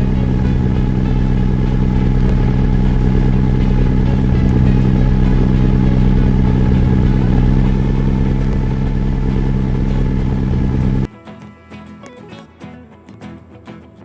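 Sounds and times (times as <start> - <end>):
engine humming steadily: 0.0 - 11.1.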